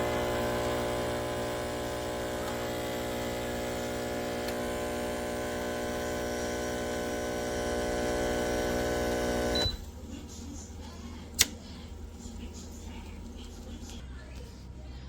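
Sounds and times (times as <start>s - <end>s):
steam hissing: 0.0s - 9.6s
espresso machine electric buzz: 0.0s - 9.9s.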